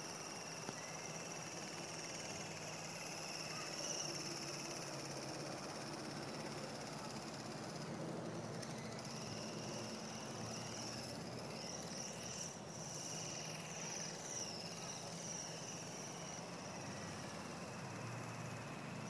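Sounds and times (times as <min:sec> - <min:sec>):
rc helicopter motor whine: 0:00.0 - 0:19.0.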